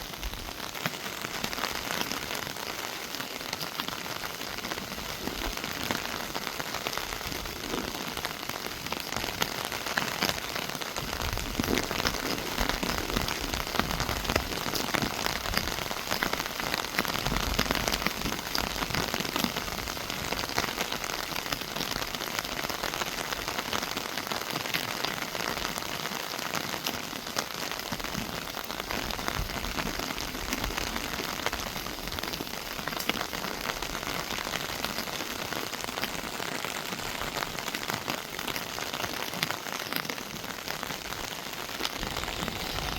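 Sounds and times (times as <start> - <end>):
rain falling on foliage: 0.0 - 42.9.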